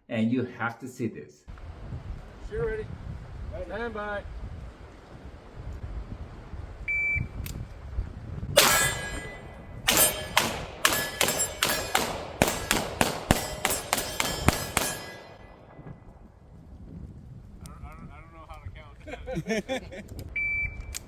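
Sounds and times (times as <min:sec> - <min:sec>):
pistol shots: 0:08.6 - 0:15.8.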